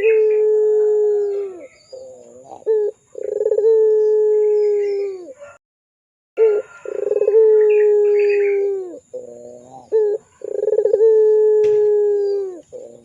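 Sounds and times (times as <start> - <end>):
dove cooing: 0.0 - 5.6, 6.4 - 13.0.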